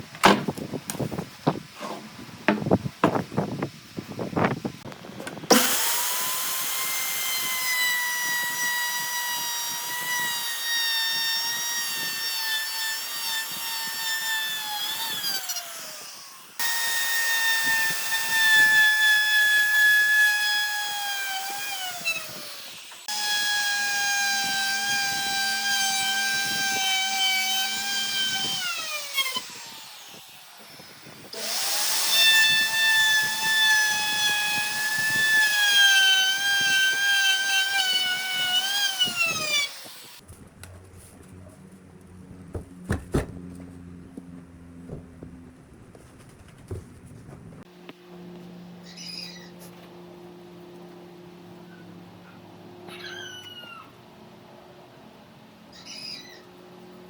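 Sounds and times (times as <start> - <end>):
power tool motor whining: 5.5 - 40.2.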